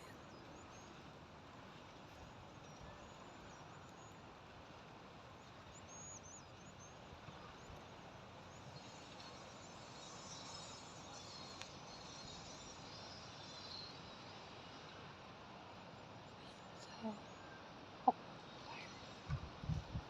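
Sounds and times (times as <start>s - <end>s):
faint high insect chirring: 8.5s - 15.0s.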